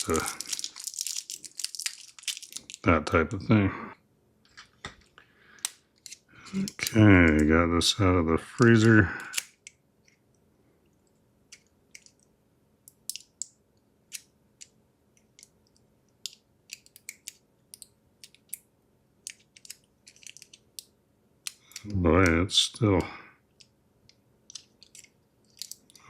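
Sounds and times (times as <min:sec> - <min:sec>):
plastic film crinkling: 0:00.0 - 0:02.9.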